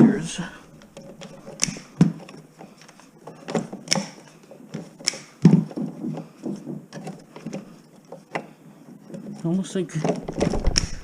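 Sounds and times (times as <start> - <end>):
hand tools clicking on wire: 0.7 - 8.5.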